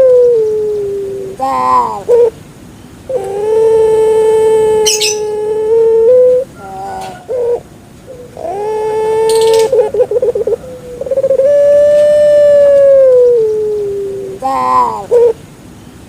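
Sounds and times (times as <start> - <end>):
dove cooing: 0.0 - 2.4, 3.1 - 15.4
high bird chirp: 4.9 - 5.3, 9.3 - 11.4.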